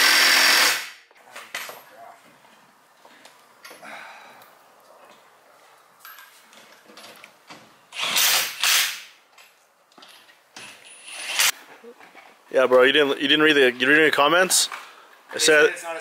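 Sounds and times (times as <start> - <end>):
power tool working a nut: 0.0 - 1.0, 7.9 - 9.0.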